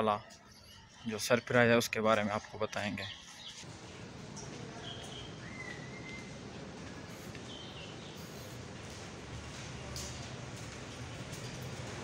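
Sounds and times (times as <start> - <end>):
high bird chirps: 0.3 - 1.6, 2.8 - 3.6, 4.8 - 8.6.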